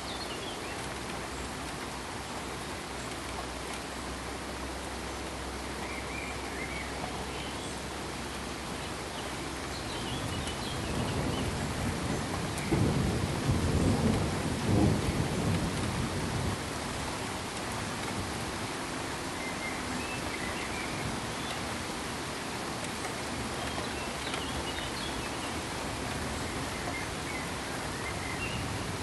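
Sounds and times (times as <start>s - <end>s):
steady noise hiss: 0.0s - 29.0s
thunder rumbling: 10.1s - 19.0s.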